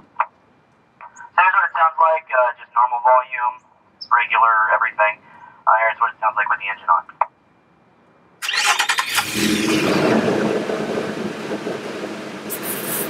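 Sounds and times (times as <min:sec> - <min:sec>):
starter motor cranking: 0:08.4 - 0:09.7
car engine idling: 0:08.5 - 0:13.0.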